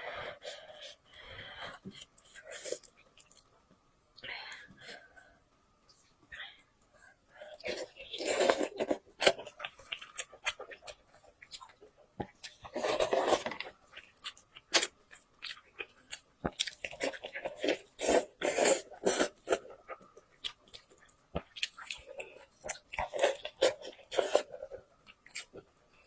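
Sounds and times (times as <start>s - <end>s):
chewing and crunching: 7.5s - 26.0s.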